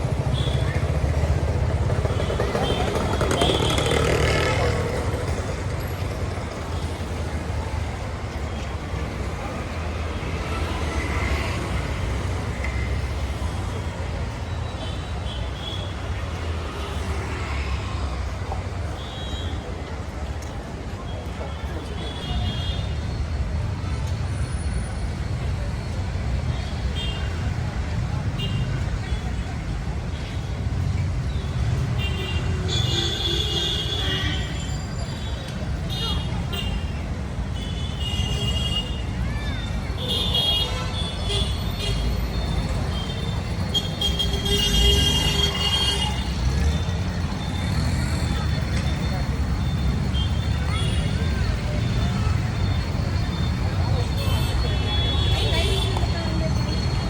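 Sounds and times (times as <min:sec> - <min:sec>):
vehicle engines rumbling: 0:00.0 - 0:57.0
vehicle horns: 0:40.0 - 0:46.7.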